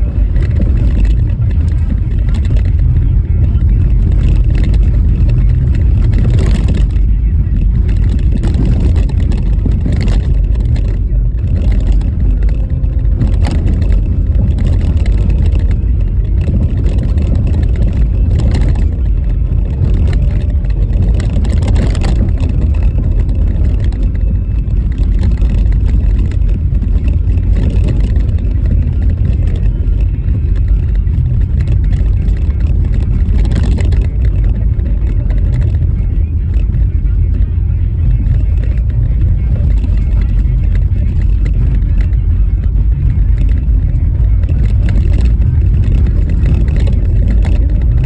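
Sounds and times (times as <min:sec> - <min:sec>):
tyre and road rumble: 0:00.0 - 0:48.0.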